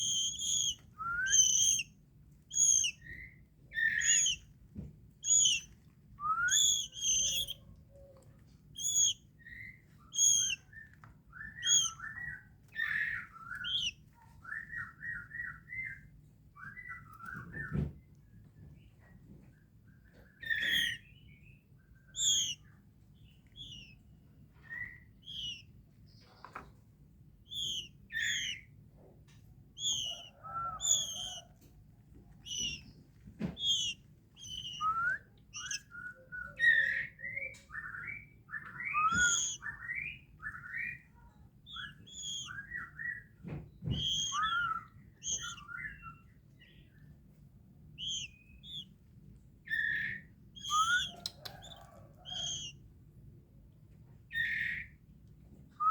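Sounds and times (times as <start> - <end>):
bird chirping and whistling: 0.0 - 1.9, 2.5 - 4.4, 5.2 - 7.6, 8.8 - 16.0, 20.4 - 21.2, 22.1 - 22.6, 23.6 - 24.0, 24.6 - 25.6, 27.4 - 28.7, 29.8 - 31.5, 32.4 - 33.0, 33.6 - 41.1, 41.7 - 46.8, 48.0 - 48.9, 49.7 - 52.8, 54.3 - 54.9.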